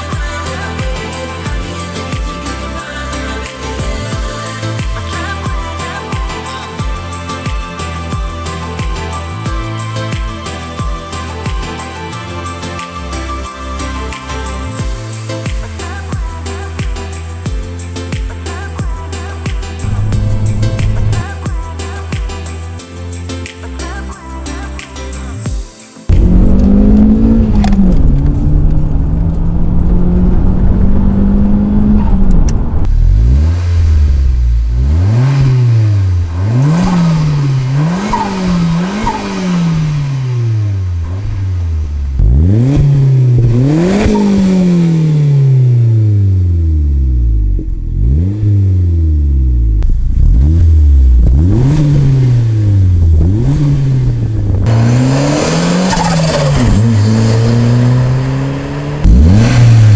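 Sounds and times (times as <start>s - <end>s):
car engine revving: 19.8s - 21.4s, 26.1s - 59.9s.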